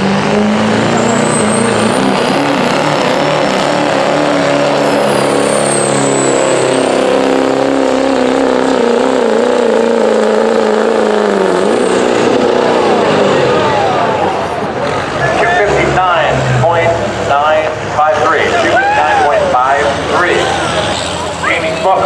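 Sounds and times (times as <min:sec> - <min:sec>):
diesel truck engine at high revs: 0:00.0 - 0:22.0
turbocharger whistle: 0:00.8 - 0:08.2.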